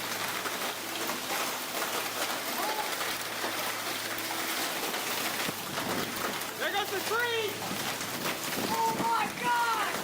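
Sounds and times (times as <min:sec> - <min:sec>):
heavy rain: 0:00.0 - 0:10.0
storm wind: 0:07.5 - 0:10.0.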